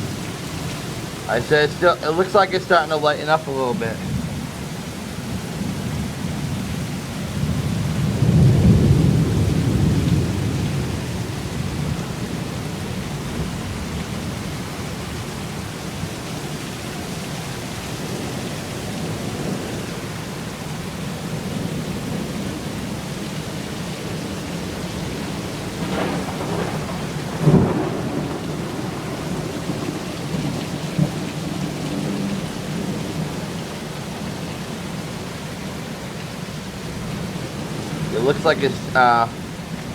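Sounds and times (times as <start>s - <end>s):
heavy rain pouring: 0.0s - 39.9s
rolling thunder: 3.9s - 15.2s, 24.0s - 34.4s
sharp thunder crack: 25.8s - 32.3s.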